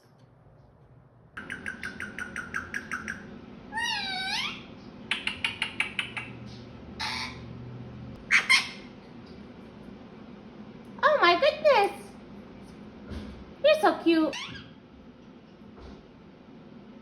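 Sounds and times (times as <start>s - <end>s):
parakeet wavering whistled call: 1.4s - 6.3s, 7.0s - 7.4s, 8.3s - 8.9s
parakeet rapid chirps: 1.4s - 7.5s, 8.3s - 8.9s
parakeet loud squawk: 3.8s - 6.4s, 7.0s - 7.5s, 8.3s - 9.0s.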